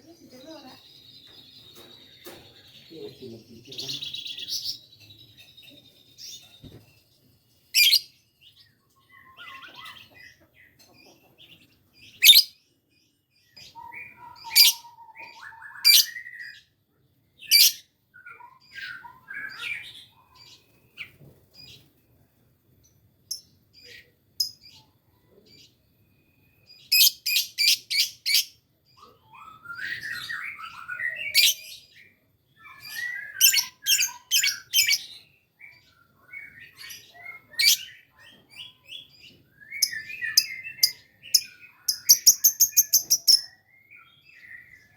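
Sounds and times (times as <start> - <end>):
lovebird chirping: 7.7 - 8.2, 11.6 - 12.6, 17.4 - 17.8, 23.2 - 31.8, 32.6 - 44.9.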